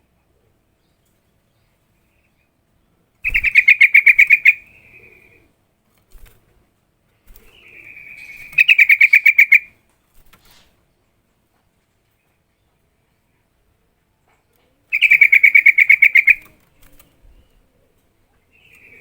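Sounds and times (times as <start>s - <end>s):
bird rapid chattering calls: 3.2s - 5.2s, 7.4s - 9.7s, 14.9s - 16.6s.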